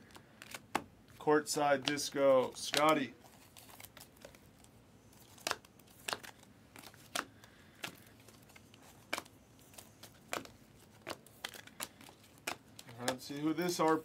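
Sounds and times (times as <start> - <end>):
cards flicking: 1.8 - 3.1
wrapper crinkling: 2.0 - 14.0.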